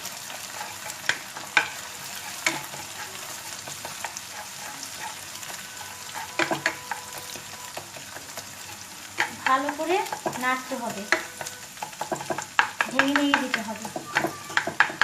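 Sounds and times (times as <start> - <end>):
egg sizzling in a frying pan: 0.0 - 15.0
utensil clicking against pan: 6.1 - 15.0.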